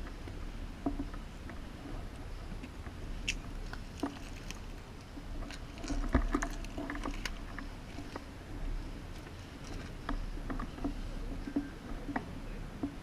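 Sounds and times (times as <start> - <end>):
light clicks and knocks: 0.0 - 8.3, 9.1 - 13.0
rustling: 3.2 - 8.3.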